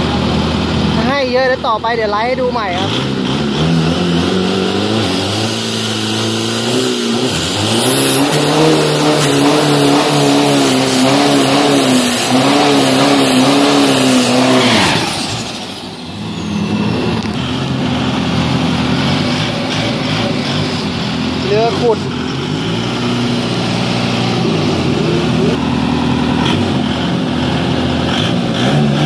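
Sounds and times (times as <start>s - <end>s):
pickup engine at full throttle: 0.0s - 29.0s
high whistle: 7.7s - 15.2s, 15.8s - 17.2s.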